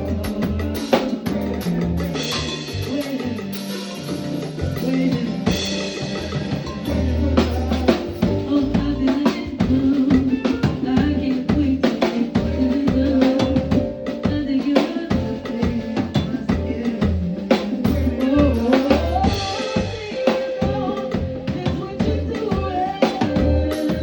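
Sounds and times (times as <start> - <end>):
heavy bass line: 0.0 - 10.4, 15.1 - 22.3
drum kit rhythm: 0.0 - 24.0
live band playing: 0.0 - 24.0.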